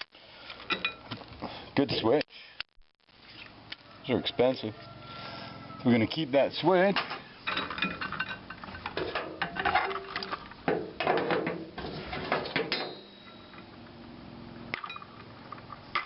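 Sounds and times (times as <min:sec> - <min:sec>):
metallic ring: 0:12.7 - 0:13.7.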